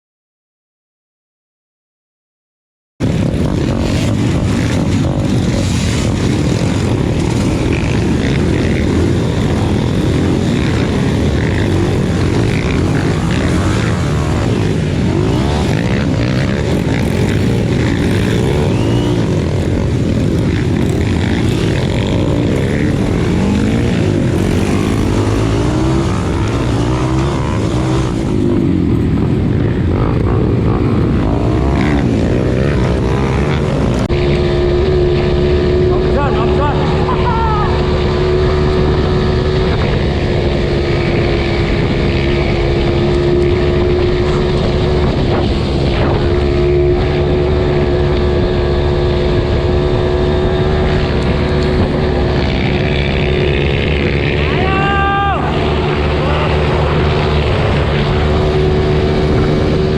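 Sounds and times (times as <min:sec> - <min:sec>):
motorcycle engine under load: 0:03.3 - 0:37.2.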